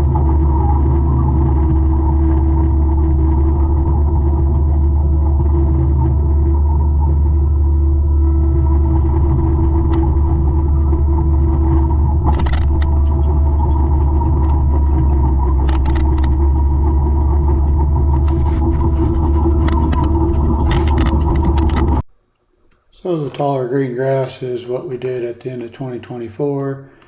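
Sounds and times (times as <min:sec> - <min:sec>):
diesel engine rumbling under load: 0:00.0 - 0:22.0
sharp clicks and cracks: 0:08.6 - 0:23.5.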